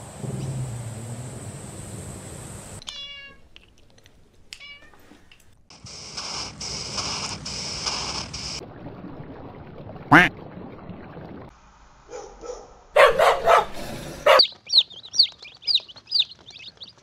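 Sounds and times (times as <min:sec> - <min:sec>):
cat meowing: 0:02.9 - 0:03.4.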